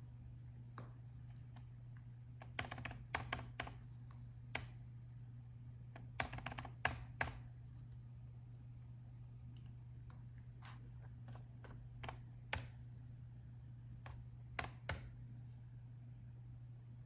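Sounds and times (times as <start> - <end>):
steady low hum: 0.0 - 17.0
laptop keyboard typing: 2.4 - 3.9, 6.0 - 7.5, 10.6 - 12.8, 14.0 - 15.1.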